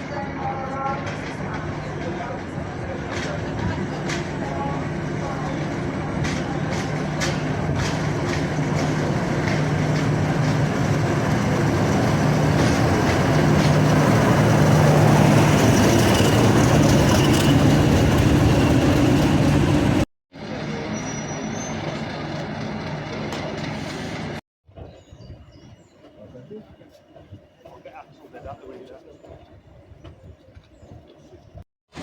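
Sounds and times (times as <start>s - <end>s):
diesel train engine hum: 0.0s - 24.4s.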